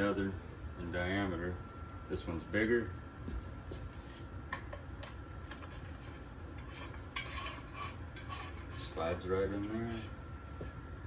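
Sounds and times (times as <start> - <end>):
metal tube scraping: 5.8 - 10.6.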